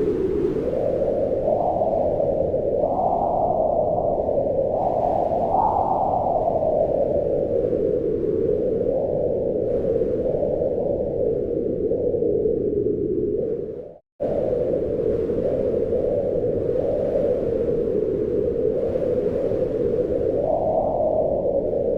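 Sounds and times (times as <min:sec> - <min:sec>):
wind blowing in gusts: 0:00.0 - 0:21.9.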